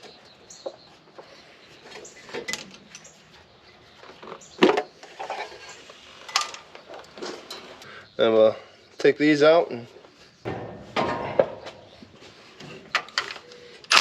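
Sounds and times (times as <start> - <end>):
metal tools clinking and knocking: 1.9 - 3.2, 6.3 - 7.9, 10.5 - 12.0, 12.6 - 14.0
loud metal clank: 10.5 - 12.0.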